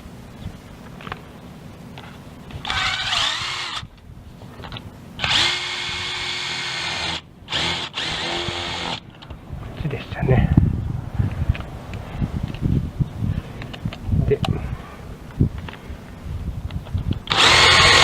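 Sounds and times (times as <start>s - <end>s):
power drill whining: 2.6s - 3.9s, 5.2s - 9.0s, 17.3s - 18.0s.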